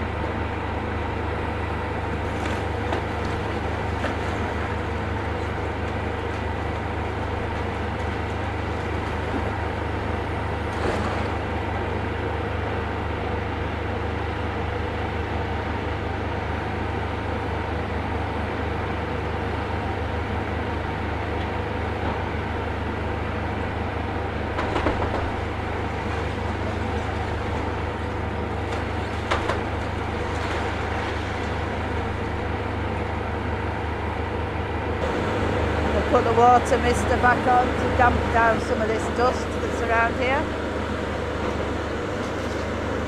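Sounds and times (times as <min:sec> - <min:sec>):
demolition machinery engine hum: 0:00.0 - 0:43.0.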